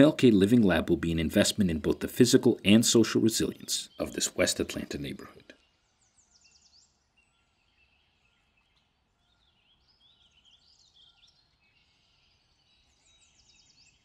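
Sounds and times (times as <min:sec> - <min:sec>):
bird trill: 0:00.0 - 0:14.0
faint birds chirping and warbling: 0:00.0 - 0:14.0.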